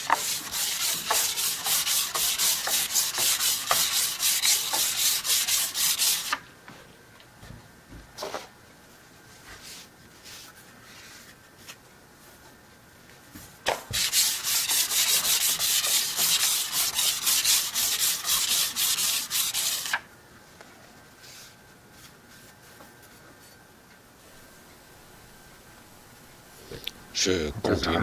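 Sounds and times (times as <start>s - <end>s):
metal blade rubbing on sandpaper: 0.0s - 6.4s, 14.0s - 20.0s.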